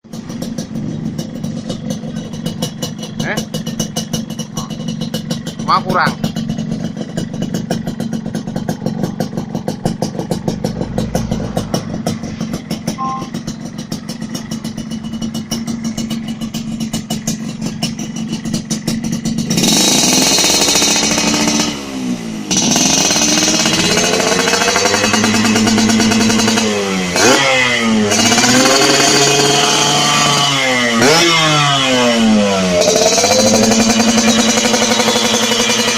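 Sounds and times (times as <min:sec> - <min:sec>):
motorcycle engine idling and revving: 0:00.0 - 0:35.9.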